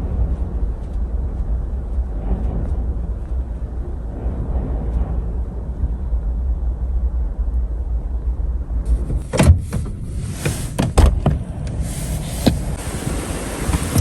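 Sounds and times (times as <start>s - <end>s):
blizzard wind rumbling: 0.0s - 14.0s
loud hiss: 9.2s - 11.0s, 11.8s - 14.0s.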